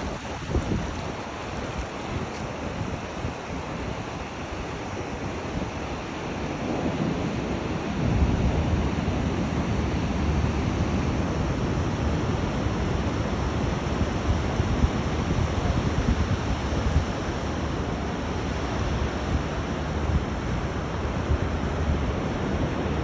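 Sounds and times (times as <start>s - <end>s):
sea surf washing on beach: 0.0s - 13.9s
wind buffeting microphone: 0.0s - 23.0s.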